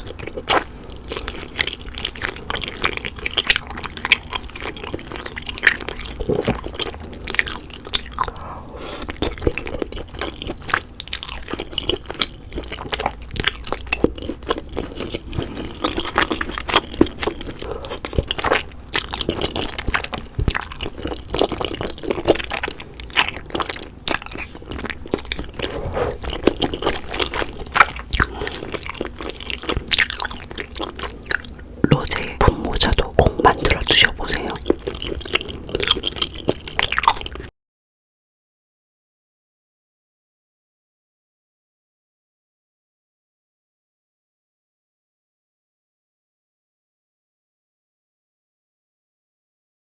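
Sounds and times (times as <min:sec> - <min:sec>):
chewing noodles: 0:00.0 - 0:37.5.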